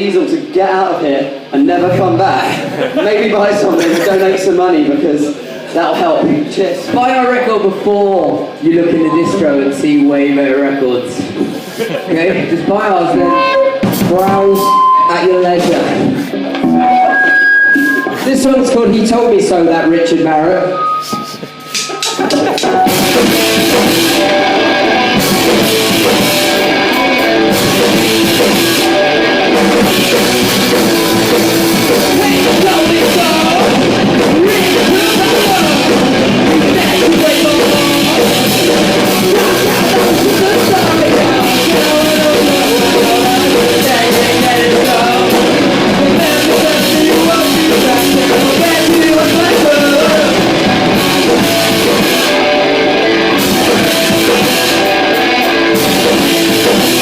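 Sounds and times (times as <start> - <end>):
distorted guitars: 0.0 - 57.0
bass guitar: 1.3 - 4.6, 8.3 - 57.0
drum kit: 1.3 - 5.1, 11.0 - 57.0
person singing: 31.9 - 53.0.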